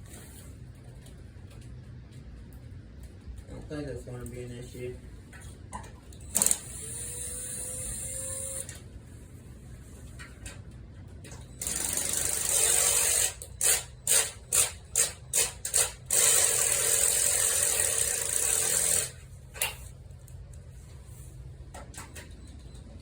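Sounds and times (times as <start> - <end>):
cordless drill running: 6.3 - 8.7, 11.6 - 19.2.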